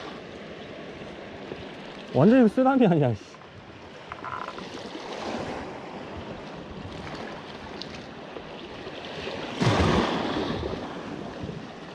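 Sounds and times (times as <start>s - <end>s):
waves washing in: 0.0s - 11.9s
loud crash of water: 9.6s - 10.8s.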